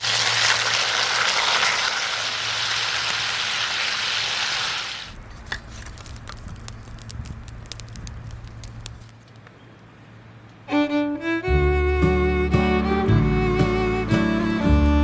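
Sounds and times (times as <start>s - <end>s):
wood fire crackling: 0.0s - 9.5s.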